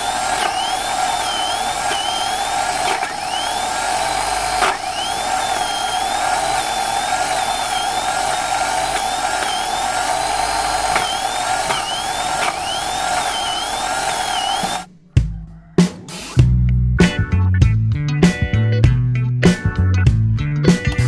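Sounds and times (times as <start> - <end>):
electric grater whining: 0.0 - 14.9.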